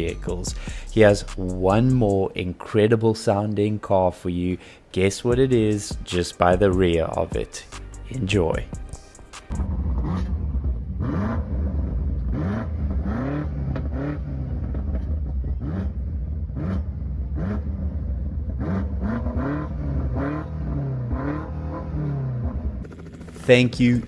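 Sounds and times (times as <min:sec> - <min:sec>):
engine idle rumble: 0:00.0 - 0:02.2, 0:09.5 - 0:13.0, 0:13.7 - 0:18.6
car engine throttle blips: 0:09.4 - 0:24.0.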